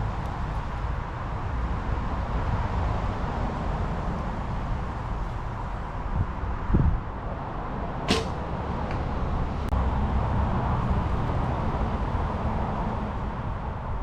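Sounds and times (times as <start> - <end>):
arrow whoosh: 8.1 - 8.8.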